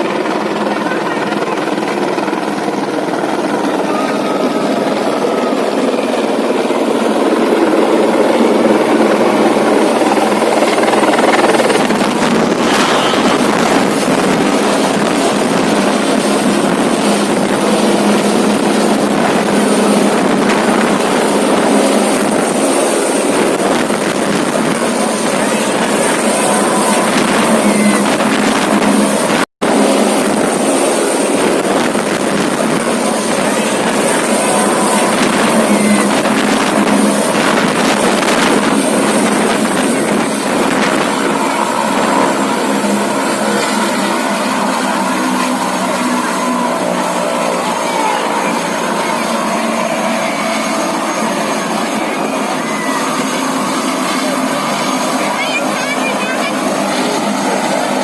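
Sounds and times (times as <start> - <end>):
airplane engines droning: 0.0 - 58.0
rushing air: 7.4 - 50.2.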